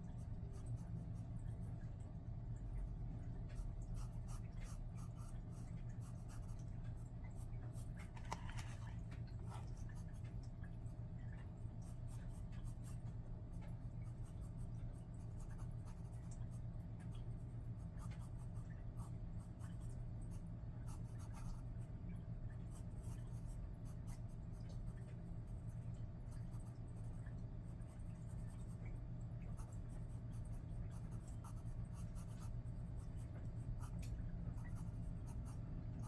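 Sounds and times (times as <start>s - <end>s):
steady low hum: 0.0s - 36.0s
pencil scratching on paper: 7.8s - 9.8s.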